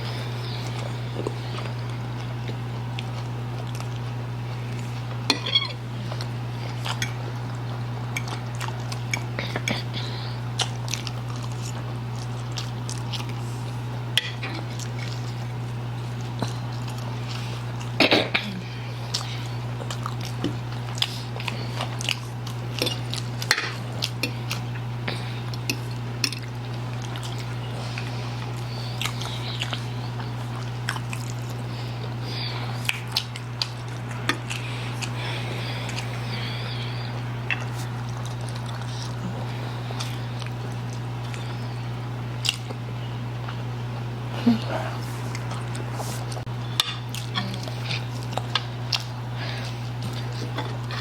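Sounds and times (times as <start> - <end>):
people chewing noodles: 0.0 - 51.0
steady low hum: 0.0 - 51.0.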